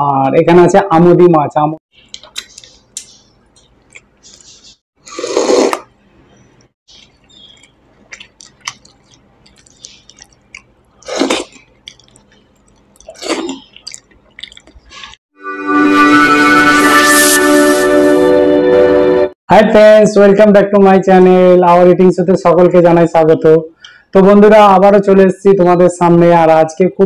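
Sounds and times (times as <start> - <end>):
man chewing and lip-smacking: 2.0 - 5.9, 6.5 - 15.2
loud wet mouth sounds: 2.1 - 5.9, 6.9 - 15.2.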